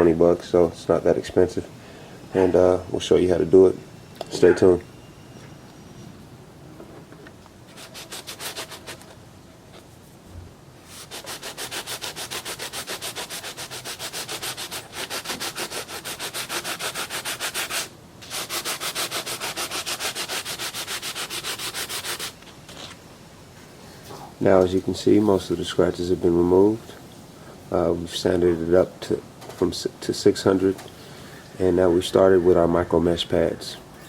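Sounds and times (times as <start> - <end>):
hand sanding with sandpaper: 7.7 - 9.1, 10.8 - 22.9.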